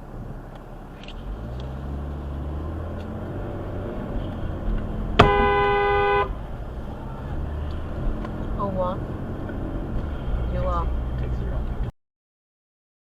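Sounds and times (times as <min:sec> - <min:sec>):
road noise: 0:00.0 - 0:11.9
vehicle engine: 0:00.0 - 0:11.9
vehicle horn: 0:05.2 - 0:06.4.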